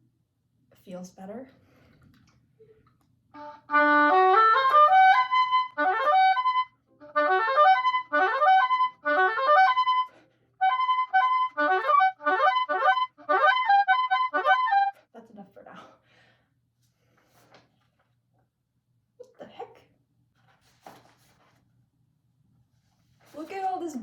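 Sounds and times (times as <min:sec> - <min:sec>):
oboe playing fast notes: 0:03.4 - 0:15.0.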